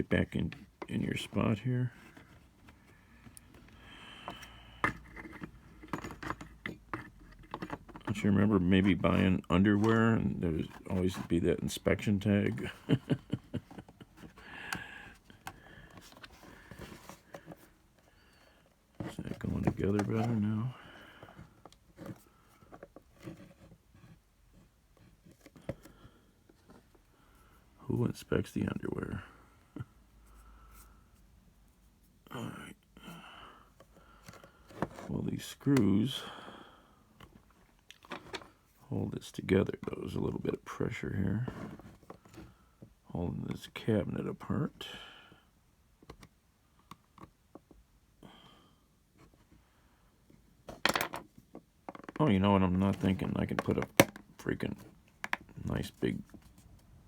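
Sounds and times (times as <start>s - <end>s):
soft breath: 1.9s - 5.4s, 14.3s - 18.8s, 20.7s - 22.9s, 25.6s - 27.8s, 29.2s - 31.3s, 33.0s - 35.1s, 36.2s - 37.4s
clicks of plastic case handled: 52.9s - 55.6s
plastic case clicks and knocks: 53.5s - 54.3s.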